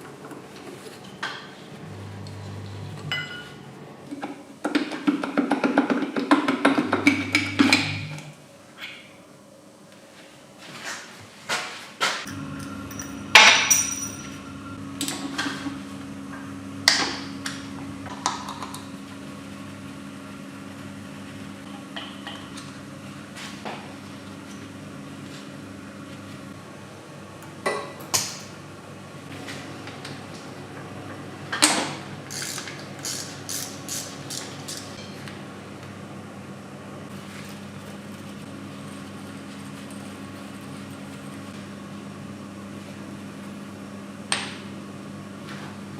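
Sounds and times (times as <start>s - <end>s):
machine hum: 0.0s - 4.5s, 6.5s - 8.6s, 12.3s - 26.9s
metal tools clinking on metal: 12.9s - 14.4s.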